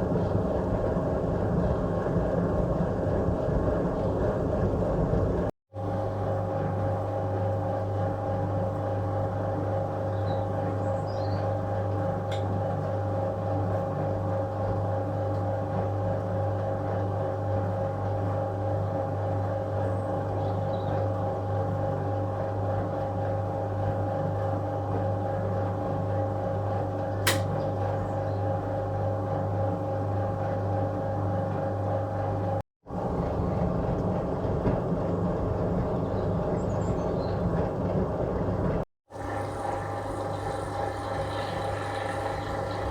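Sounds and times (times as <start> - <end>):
washing machine motor hum: 0.0 - 42.9
sharp click: 27.2 - 27.6.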